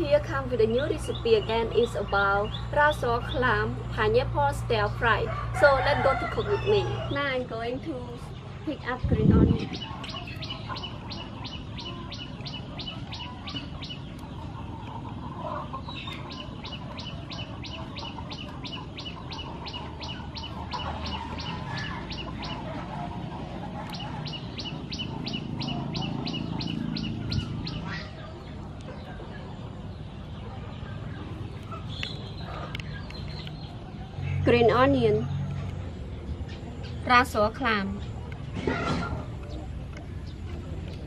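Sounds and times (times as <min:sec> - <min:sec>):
low outdoor rumble: 0:00.0 - 0:41.0
bird high chirps: 0:15.7 - 0:22.7, 0:23.8 - 0:41.0.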